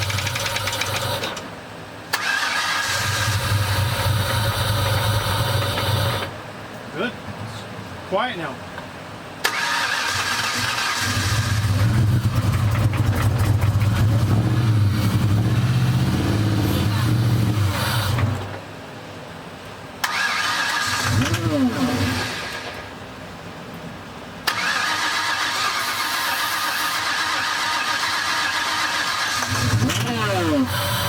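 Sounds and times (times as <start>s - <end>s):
engine running and dying: 0.0s - 1.4s, 2.1s - 6.3s, 9.4s - 18.6s, 24.4s - 31.0s
engine cranking on starter: 0.0s - 1.5s, 2.1s - 6.3s, 9.4s - 15.6s, 20.0s - 22.9s, 24.4s - 31.0s.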